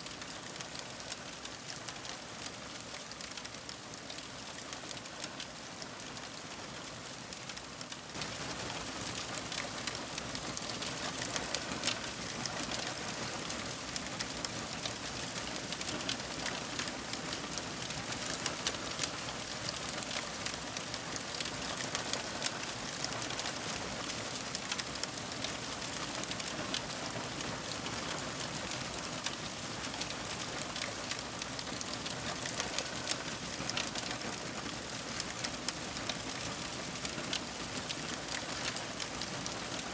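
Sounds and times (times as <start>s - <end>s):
wood fire crackling: 8.1s - 39.8s.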